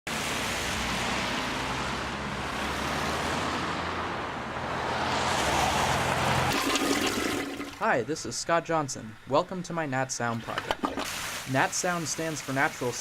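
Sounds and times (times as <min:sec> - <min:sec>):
vehicle engine hum: 0:00.1 - 0:06.6
road noise: 0:00.1 - 0:13.0.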